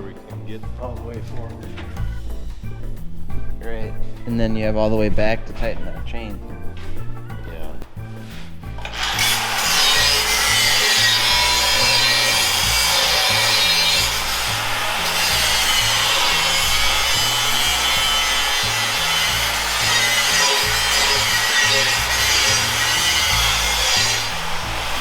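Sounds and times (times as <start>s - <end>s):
background music with bass line: 0.0s - 25.0s
power tool rasping: 8.2s - 25.0s.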